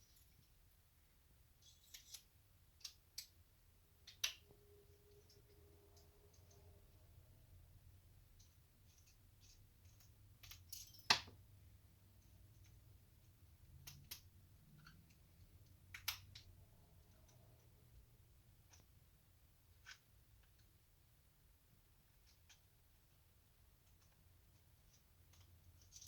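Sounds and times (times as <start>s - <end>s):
wrenches and metal parts clicking: 1.6s - 3.3s.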